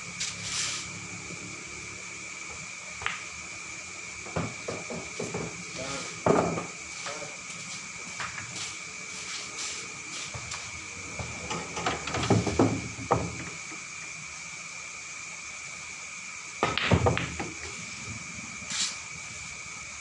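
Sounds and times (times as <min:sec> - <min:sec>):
billiard balls clacking: 0:04.3 - 0:05.6, 0:06.2 - 0:06.8, 0:11.2 - 0:13.5, 0:16.6 - 0:17.8.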